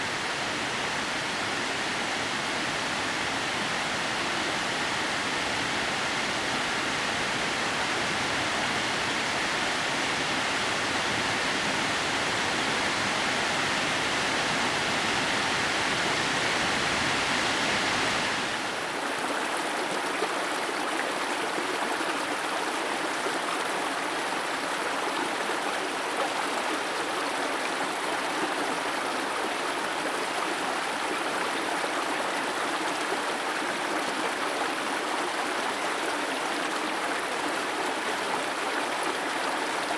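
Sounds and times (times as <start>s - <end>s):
waterfall rushing: 0.0s - 19.6s.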